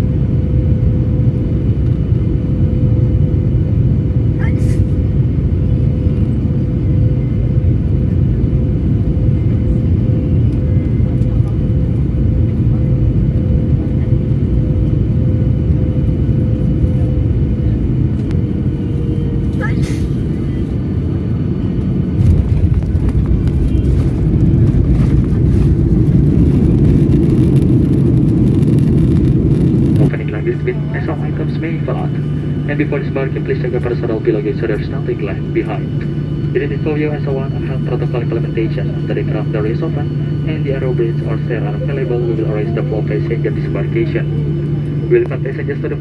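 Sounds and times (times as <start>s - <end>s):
jet engines rumbling in cabin: 0.0s - 46.0s
steady hum: 0.0s - 46.0s.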